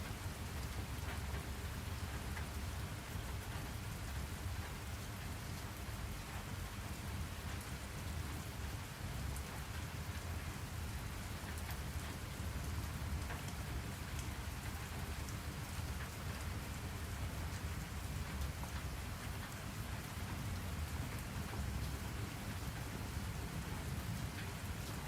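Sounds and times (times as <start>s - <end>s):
rain falling: 0.0s - 25.0s.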